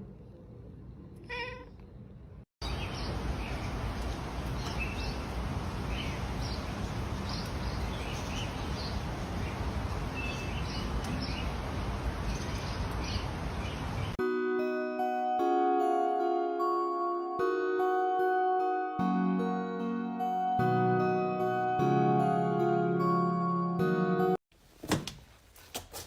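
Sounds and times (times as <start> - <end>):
birds chirping: 2.6 - 14.2.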